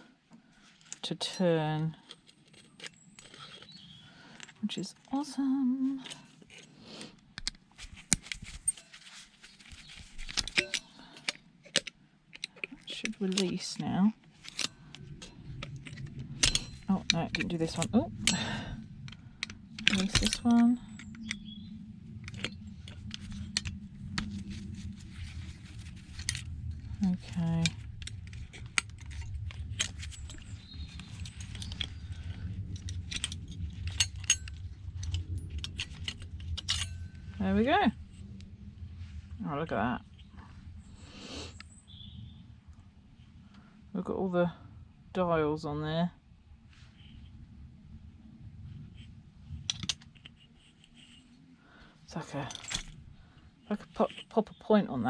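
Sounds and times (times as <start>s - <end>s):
low steady hum: 0.0s - 55.0s
small parts clicking and scraping: 1.7s - 5.3s, 6.0s - 39.2s, 48.7s - 51.4s, 52.1s - 54.6s.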